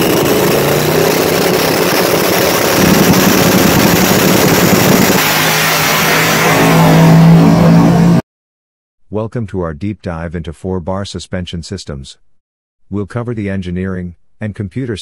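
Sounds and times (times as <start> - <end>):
race car engine roaring: 0.0 - 8.2.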